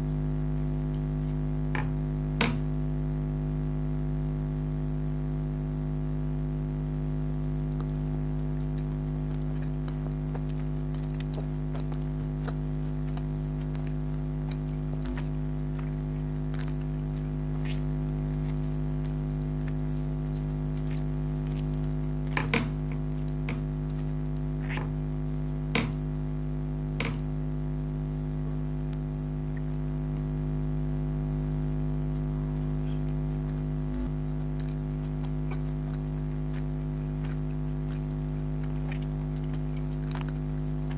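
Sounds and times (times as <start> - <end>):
steady low hum: 0.0 - 40.9
mouth and food clicks: 7.4 - 26.3, 32.0 - 40.9.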